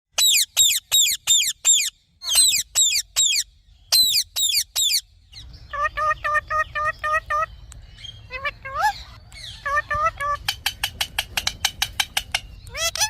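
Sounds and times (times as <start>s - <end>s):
parakeet screeching: 0.2s - 5.0s, 12.7s - 13.0s.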